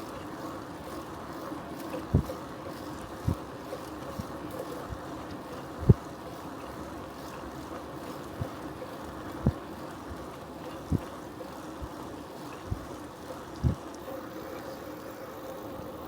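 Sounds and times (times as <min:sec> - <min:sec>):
wind and bicycle rolling noise: 0:00.0 - 0:15.0
faint steady hum: 0:11.9 - 0:16.0.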